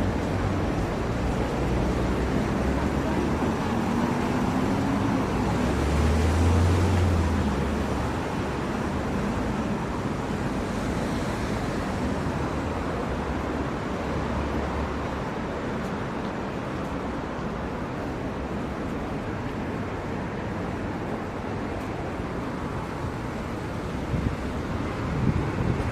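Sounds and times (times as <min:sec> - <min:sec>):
passing vehicle engine rumble: 0:00.0 - 0:12.6
traffic noise: 0:00.0 - 0:25.9.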